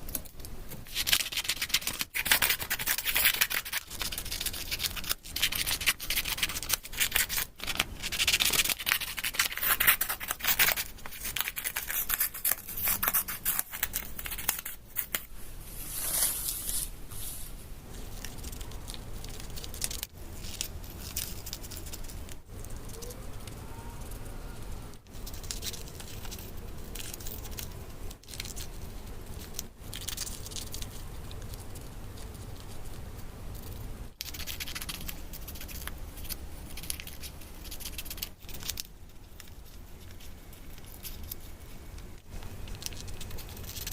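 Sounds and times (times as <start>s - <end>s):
paper rustling and crinkling: 0.8s - 23.6s.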